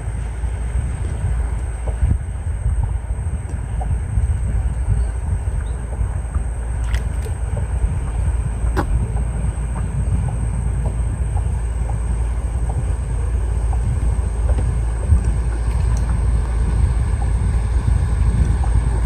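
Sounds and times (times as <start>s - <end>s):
wind buffeting microphone: 0.0s - 19.0s
faint ticks: 5.6s - 16.3s.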